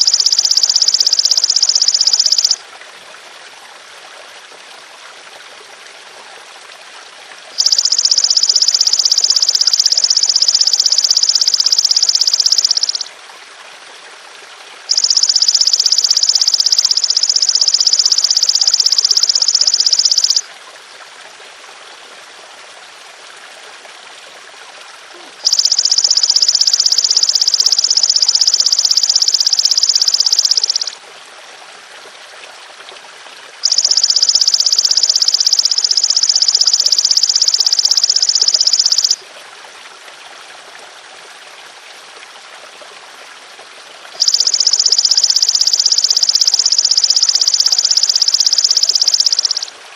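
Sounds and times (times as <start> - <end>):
grasshopper high-pitched buzzing: 0.0 - 2.6, 7.6 - 13.1, 14.9 - 20.4, 25.4 - 31.0, 33.6 - 39.2, 44.2 - 49.7
trickling stream water: 0.0 - 49.9.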